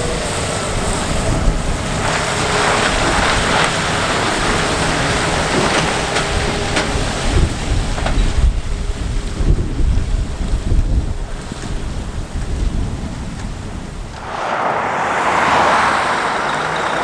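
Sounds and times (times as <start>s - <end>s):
wind buffeting microphone: 14.1s - 17.0s
heavy truck driving past: 14.2s - 17.0s.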